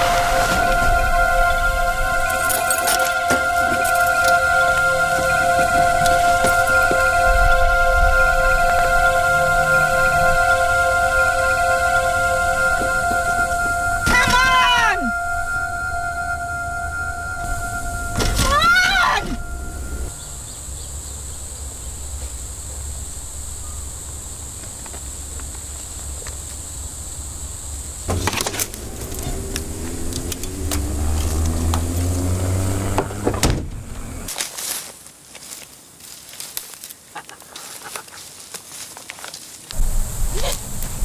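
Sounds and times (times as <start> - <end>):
car engine running: 27.9 - 34.3
rustles: 33.7 - 41.0.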